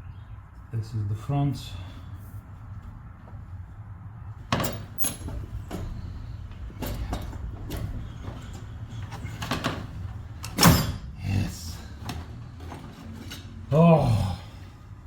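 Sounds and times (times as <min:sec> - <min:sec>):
metal tools clanking and scraping: 0:04.5 - 0:11.1, 0:11.8 - 0:13.8.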